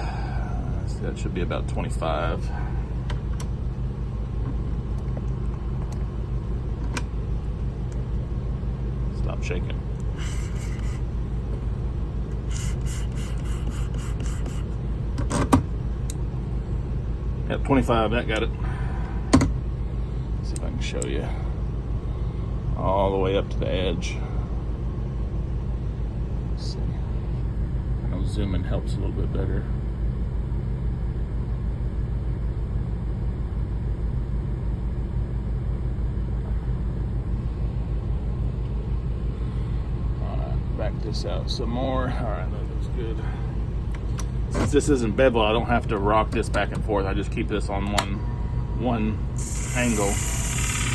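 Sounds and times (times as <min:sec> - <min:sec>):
sharpener motor humming: 0:10.0 - 0:11.1, 0:12.4 - 0:14.8, 0:49.2 - 0:50.9.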